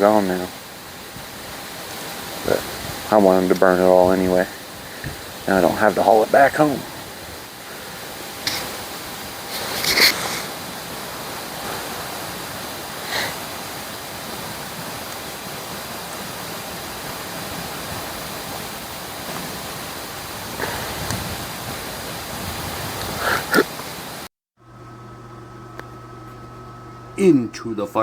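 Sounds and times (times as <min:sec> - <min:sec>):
campfire hissing: 0:00.0 - 0:24.3
fire popping: 0:00.0 - 0:24.3.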